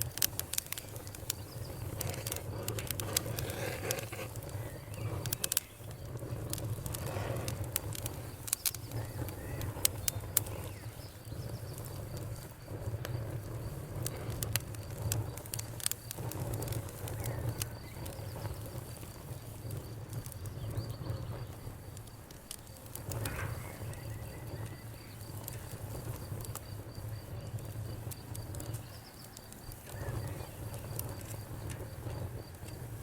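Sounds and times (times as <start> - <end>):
low rumble of burning fire: 0.0 - 33.0
sharp pops and snaps: 0.0 - 33.0
wood fire crackling: 0.0 - 33.0.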